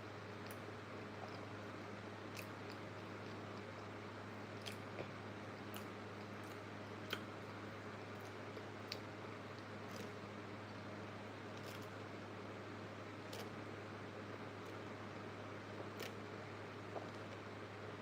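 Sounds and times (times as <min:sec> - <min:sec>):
chewing crunches: 0:02.3 - 0:03.9, 0:04.5 - 0:07.4.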